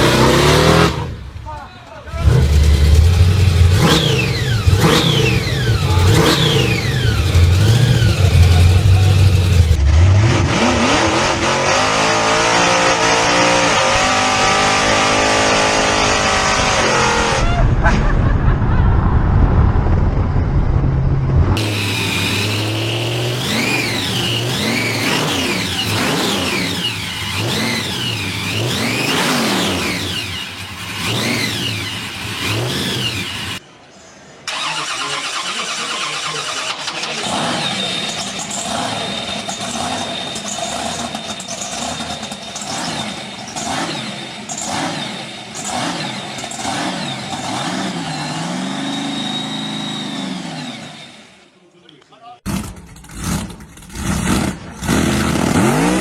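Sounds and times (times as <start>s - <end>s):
car engines revving: 0.0s - 17.9s, 19.2s - 51.6s, 52.4s - 56.0s
engine high whine with throttle blips: 2.2s - 17.6s, 35.7s - 51.5s.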